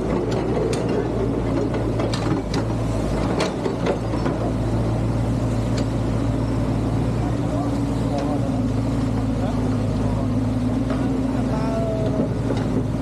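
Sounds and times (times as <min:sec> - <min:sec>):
metallic clanks and knocks: 0:00.0 - 0:04.6
diesel engine running: 0:00.0 - 0:13.0.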